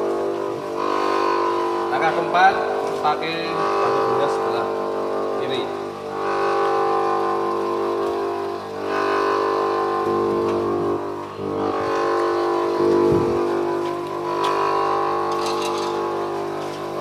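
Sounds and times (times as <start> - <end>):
bench grinder running: 0.0 - 17.0
tool bit grinding on wheel: 11.7 - 17.0.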